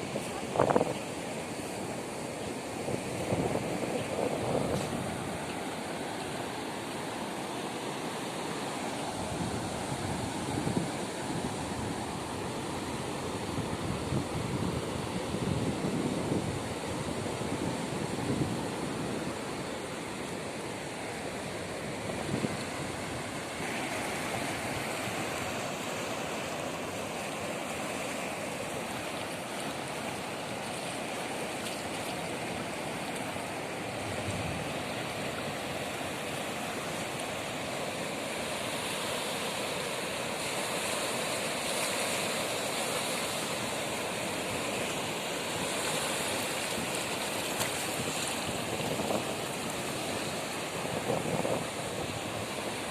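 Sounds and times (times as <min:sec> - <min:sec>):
rushing water: 0:00.0 - 0:52.9.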